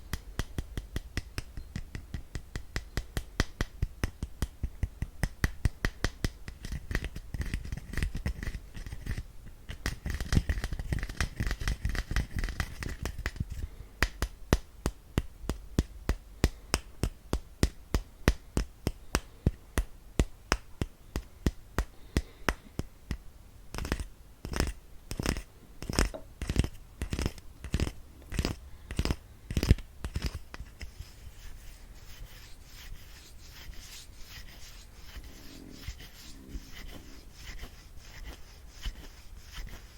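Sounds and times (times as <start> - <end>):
sharp brush taps: 23.8 - 39.9
brushing and rubbing strokes: 25.2 - 39.9.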